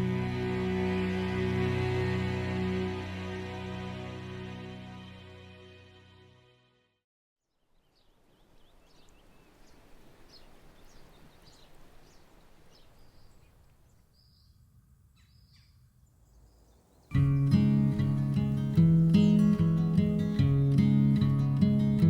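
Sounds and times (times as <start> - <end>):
acoustic guitar music: 0.0 - 5.0, 17.1 - 22.0
soft steady outdoor noise: 0.0 - 5.4, 7.4 - 22.0
small birds chirping: 7.4 - 20.4.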